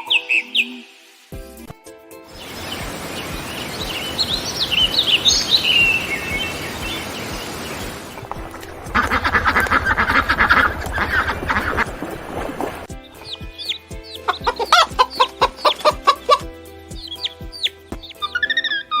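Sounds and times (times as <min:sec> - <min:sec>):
steady noisy background: 0:02.3 - 0:10.7
small birds chirping: 0:02.3 - 0:19.0
duck quacking: 0:08.6 - 0:12.0, 0:14.2 - 0:16.5.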